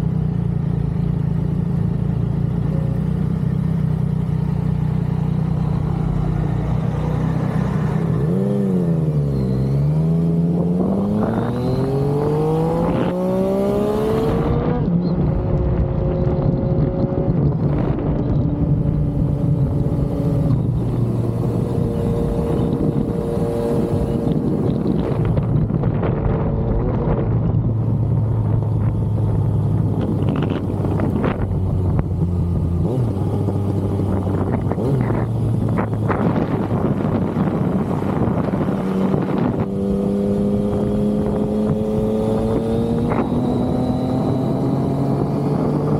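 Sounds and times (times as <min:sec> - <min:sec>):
motorcycle engine accelerating: 0:00.0 - 0:45.9
wind rush: 0:10.4 - 0:45.9.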